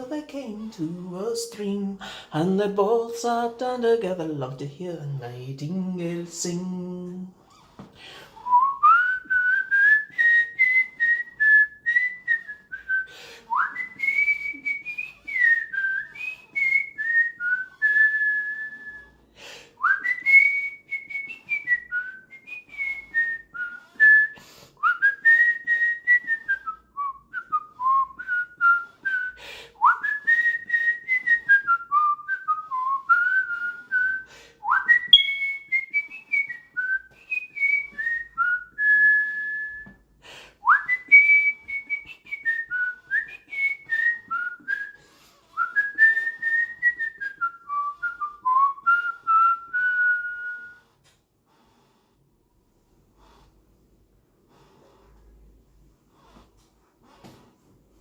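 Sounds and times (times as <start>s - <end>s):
person whistling a slow tune: 8.4s - 19.2s, 19.8s - 52.0s.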